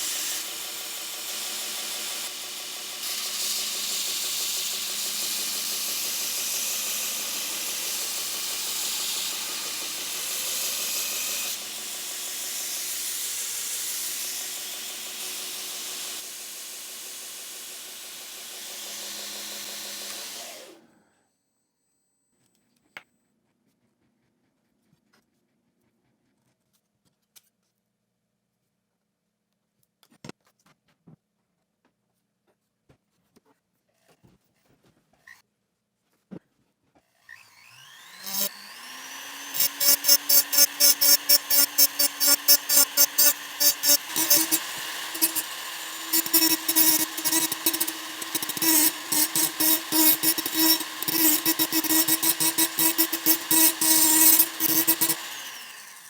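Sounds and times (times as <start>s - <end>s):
workshop machine hissing: 37.8s - 56.0s.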